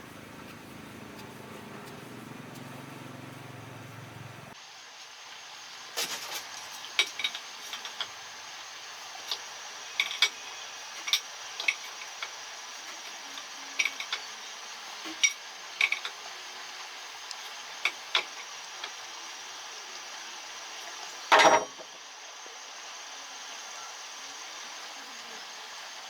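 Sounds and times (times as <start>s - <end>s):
steady hiss: 0.0s - 26.0s
metal parts clattering: 6.0s - 8.1s, 10.0s - 10.4s, 11.0s - 12.3s, 13.0s - 14.3s, 15.1s - 16.2s, 21.3s - 21.9s
hand tools clicking and clinking: 6.0s - 8.2s, 9.2s - 14.4s, 15.0s - 16.2s, 17.3s - 19.0s.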